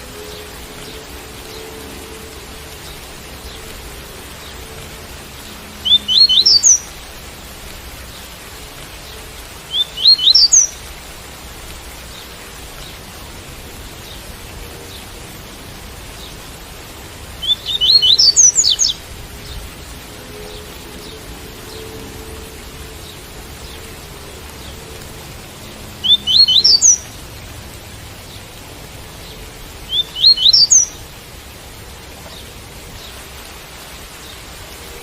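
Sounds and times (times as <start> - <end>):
steady rain: 0.0 - 35.0
bird singing quick notes: 26.0 - 27.0.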